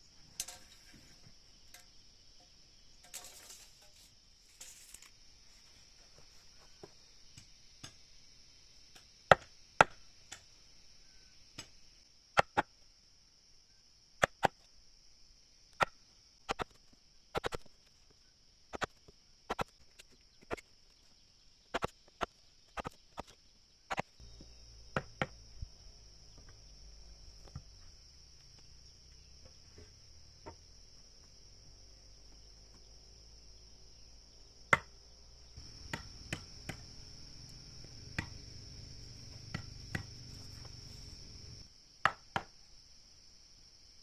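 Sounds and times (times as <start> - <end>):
high insect buzz: 23.8 - 41.9
tool striking wood: 35.6 - 37.0, 39.3 - 40.8.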